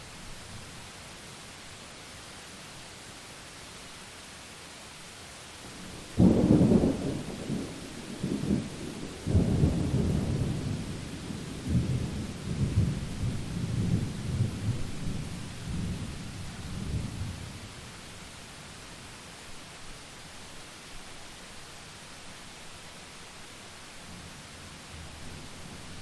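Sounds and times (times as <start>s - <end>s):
rain hissing: 0.0s - 26.0s
rolling thunder rumbles: 5.8s - 16.2s.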